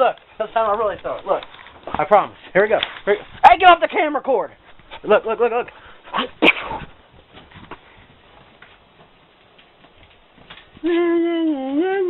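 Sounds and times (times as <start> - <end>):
dog claws tapping on floor: 8.4 - 10.8.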